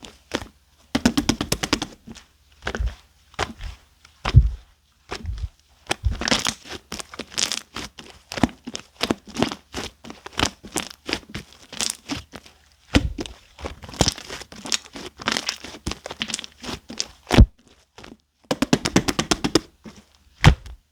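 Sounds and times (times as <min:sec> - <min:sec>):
squelching slaps: 0:18.5 - 0:19.7.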